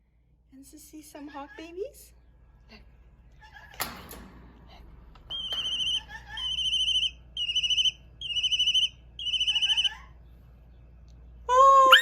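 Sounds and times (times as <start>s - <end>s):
hawk chicks crying through phone speaker: 5.4s - 10.2s.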